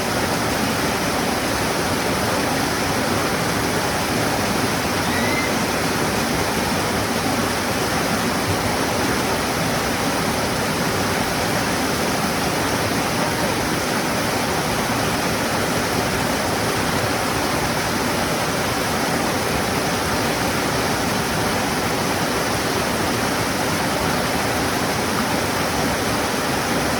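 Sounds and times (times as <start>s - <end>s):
waterfall pouring: 0.0s - 15.7s.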